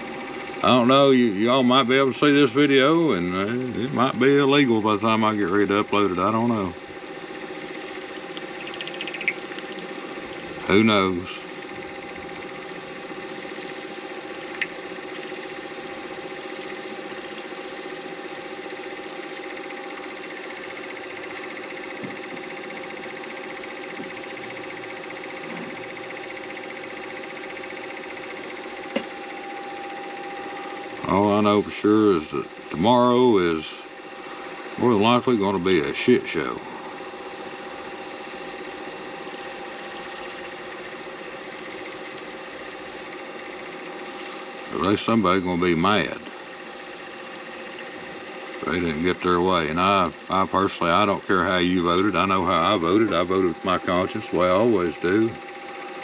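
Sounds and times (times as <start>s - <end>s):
lathe motor humming: 0.0s - 56.0s
sharp click: 14.5s - 14.8s.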